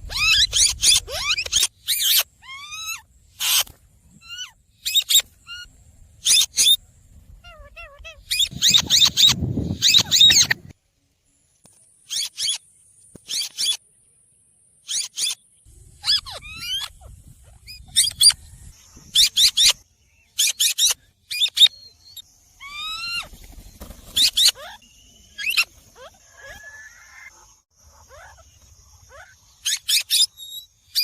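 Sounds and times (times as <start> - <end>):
parrot screeching: 0.1 - 3.6, 7.5 - 10.6, 16.0 - 16.9, 22.6 - 23.3
parrot falling whistles: 8.3 - 10.6.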